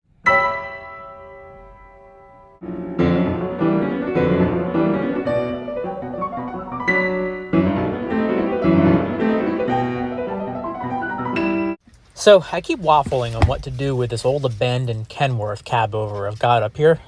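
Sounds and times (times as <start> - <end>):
piano playing repeated chords: 0.2 - 11.8.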